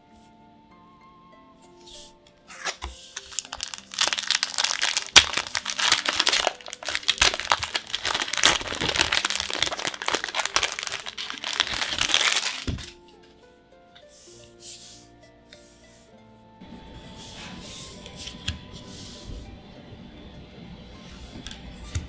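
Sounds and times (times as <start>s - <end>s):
soft background music: 0.0s - 22.0s
foil wrapper crinkling: 2.5s - 13.0s.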